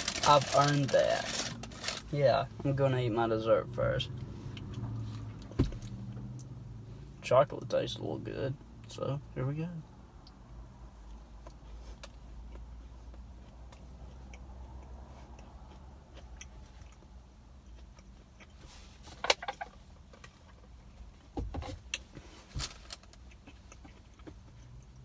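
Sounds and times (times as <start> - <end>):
cookie crunching: 0.0 - 2.2
low steady hum: 0.0 - 25.0.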